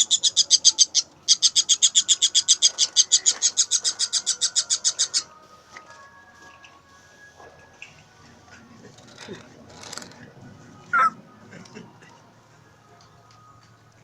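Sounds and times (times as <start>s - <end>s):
bird fast high chirps: 0.0s - 5.3s.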